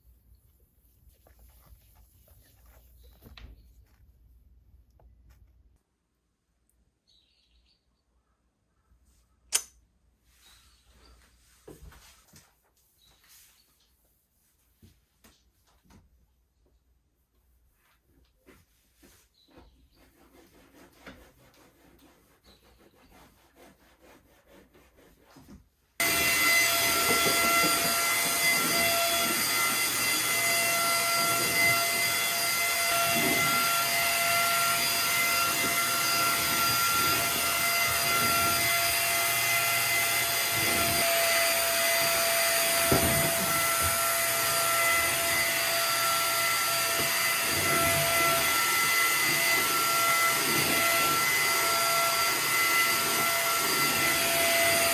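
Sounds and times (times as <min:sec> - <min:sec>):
vacuum cleaner running: 0:26.0 - 0:54.9.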